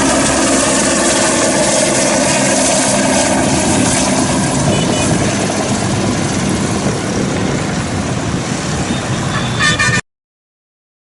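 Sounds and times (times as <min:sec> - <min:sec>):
engines and traffic rumble: 0:00.0 - 0:10.0
horn-like tone: 0:04.7 - 0:05.3, 0:08.9 - 0:10.0.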